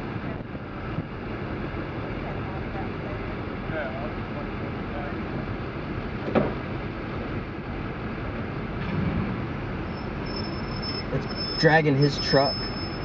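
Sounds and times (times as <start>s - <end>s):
vehicle engine rumble: 0.0s - 13.0s
brief knock: 6.3s - 6.6s.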